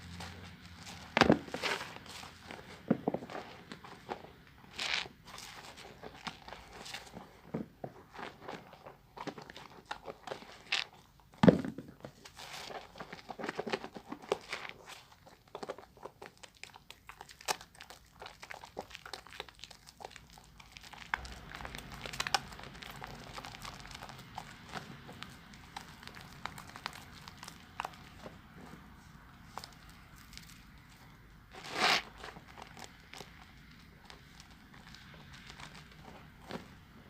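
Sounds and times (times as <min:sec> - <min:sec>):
wet sponge squishing on soap: 0:12.0 - 0:37.0
low steady rumble: 0:20.0 - 0:37.0.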